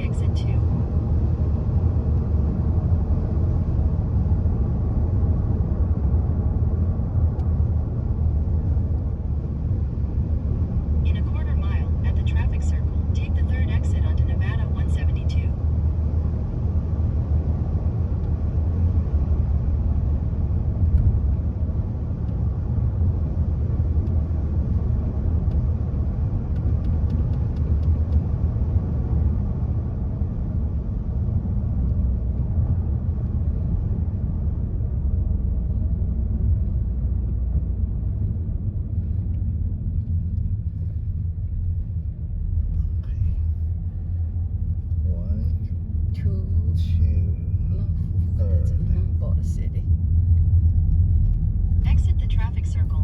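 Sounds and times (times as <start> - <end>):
car cabin road rumble: 0.0 - 53.0.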